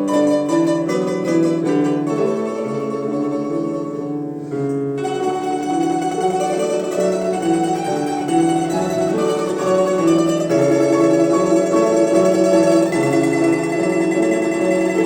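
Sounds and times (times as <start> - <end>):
plucked lutes playing melody: 0.0 - 15.0.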